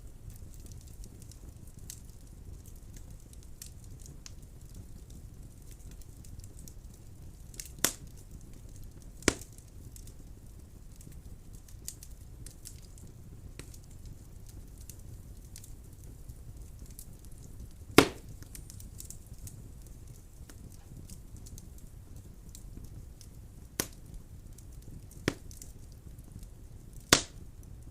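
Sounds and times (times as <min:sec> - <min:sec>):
wood fire rumbling and crackling: 0:00.0 - 0:27.9
loud sharp fire pops: 0:05.1 - 0:10.2, 0:10.9 - 0:27.7.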